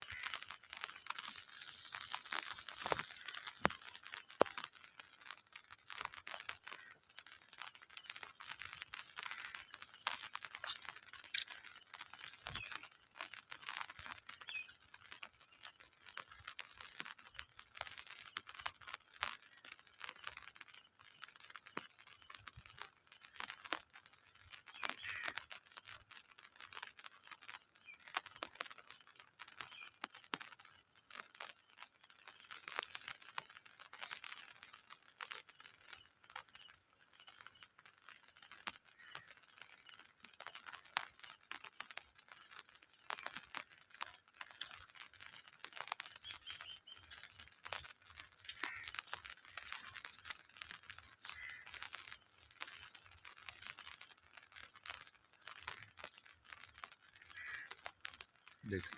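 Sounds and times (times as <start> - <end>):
rain pattering: 0.0 - 58.9.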